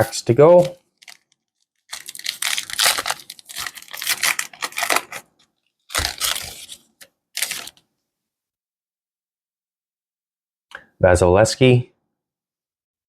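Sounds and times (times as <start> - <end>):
card pack wrapper tearing and crinkling: 0.5 - 7.8.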